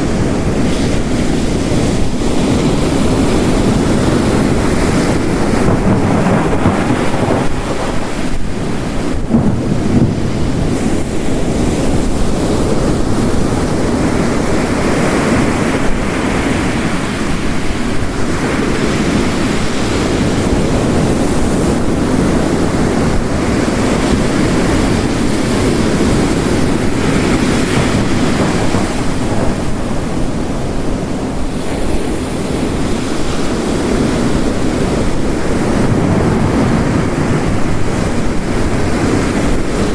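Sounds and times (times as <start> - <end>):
ocean surf crashing: 0.0 - 39.9
heavy rain hissing: 21.7 - 39.9.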